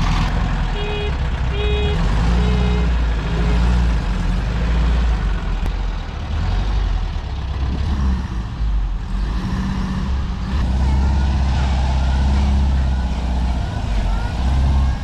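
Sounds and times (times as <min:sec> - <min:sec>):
van engine running: 0:00.0 - 0:15.0.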